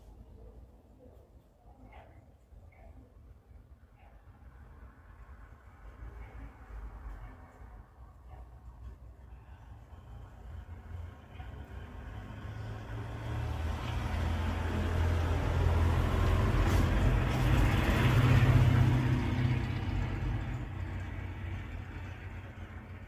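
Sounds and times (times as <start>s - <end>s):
vehicle engine rumble passing: 4.7s - 23.0s.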